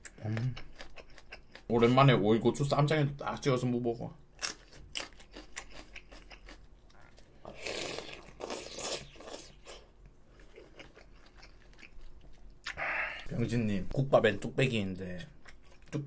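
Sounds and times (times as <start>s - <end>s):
crunchy chewing: 4.4s - 12.8s.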